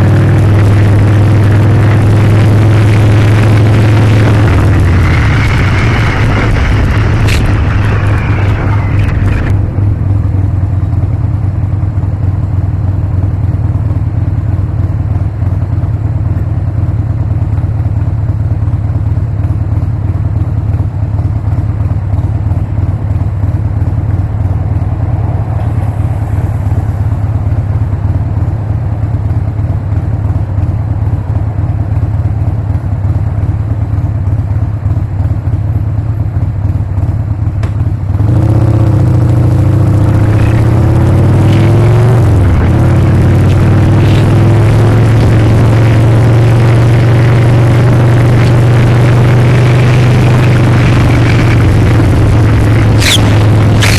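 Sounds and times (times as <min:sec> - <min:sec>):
motorcycle engine running: 0:00.0 - 0:53.9
loud rushing noise: 0:00.6 - 0:11.6, 0:23.6 - 0:29.1, 0:48.6 - 0:53.9.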